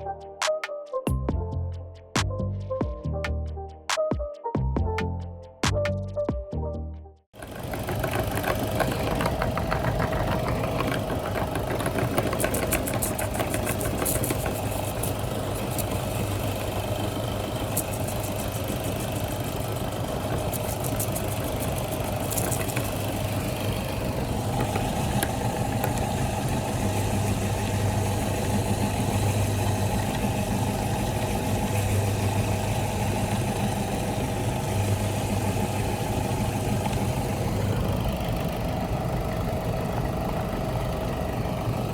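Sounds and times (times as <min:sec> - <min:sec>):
electric meat grinder running: 0:07.4 - 0:41.9
crackling clicks: 0:07.8 - 0:26.3.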